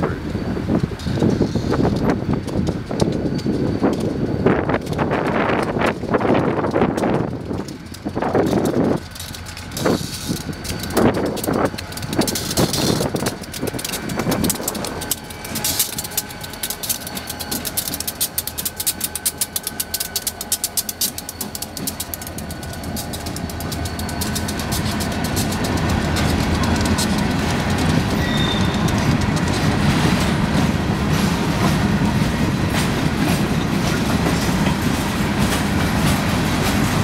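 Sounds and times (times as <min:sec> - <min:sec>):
diesel locomotives passing: 0:00.0 - 0:37.0
wind buffeting microphone: 0:00.1 - 0:16.4
wheels clattering over rails: 0:00.7 - 0:37.0.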